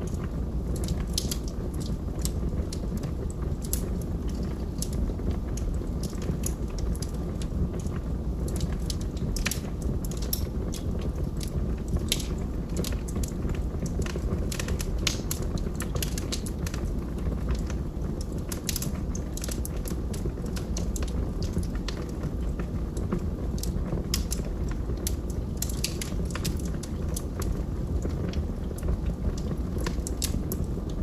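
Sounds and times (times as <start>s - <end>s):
low rumble of fire: 0.0s - 31.0s.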